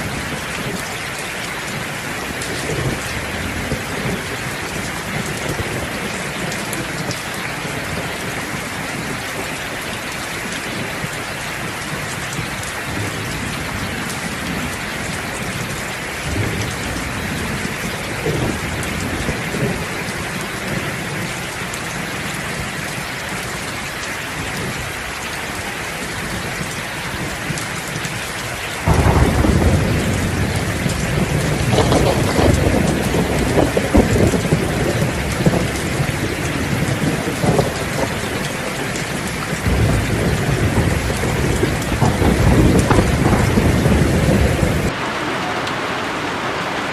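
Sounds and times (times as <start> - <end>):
steady rain falling: 0.0 - 46.9
loud thunder crash: 28.8 - 35.6, 39.7 - 45.0
distant thunder rumbling: 28.8 - 46.9.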